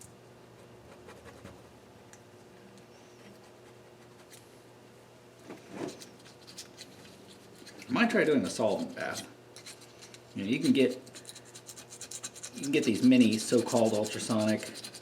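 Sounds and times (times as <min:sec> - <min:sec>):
razor blade scraping metal: 0:08.7 - 0:15.0.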